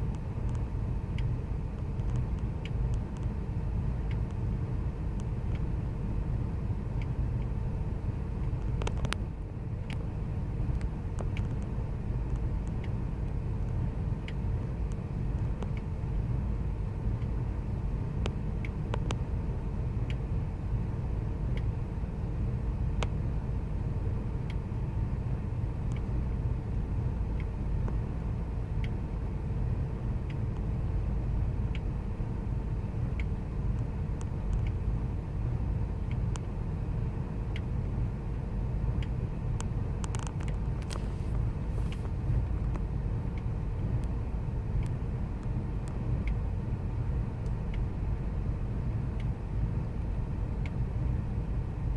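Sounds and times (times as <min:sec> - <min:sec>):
faint engine ticks: 0:00.0 - 0:51.9.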